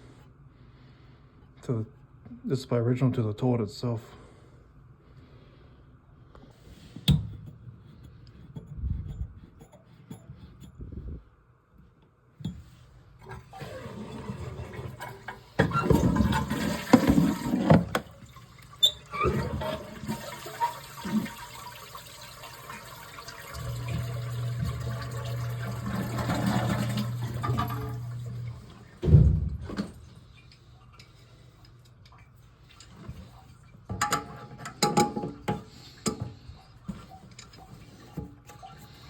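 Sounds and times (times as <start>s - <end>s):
toilet flushing: 13.2s - 30.1s.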